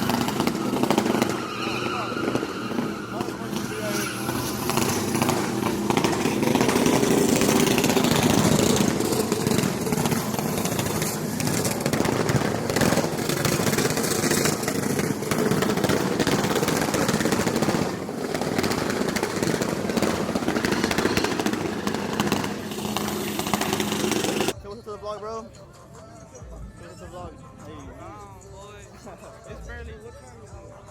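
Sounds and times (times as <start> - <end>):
vehicle engine running roughly: 0.0 - 24.5.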